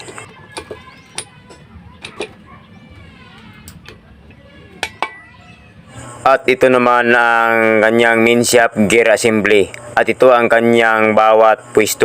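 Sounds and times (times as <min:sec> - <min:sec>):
faint background voices: 0:00.0 - 0:08.7.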